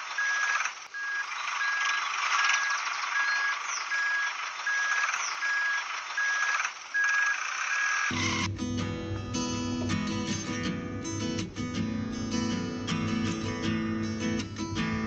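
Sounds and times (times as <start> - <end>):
reversing alarm beeping: 0.1 - 8.5
heavy machine running: 8.1 - 15.0.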